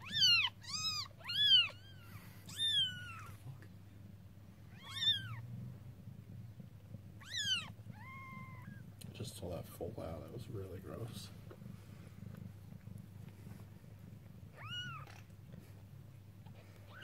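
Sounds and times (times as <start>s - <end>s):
kittens mewing: 0.0s - 3.5s, 4.7s - 5.4s, 7.2s - 8.9s, 14.4s - 15.7s, 16.4s - 17.0s.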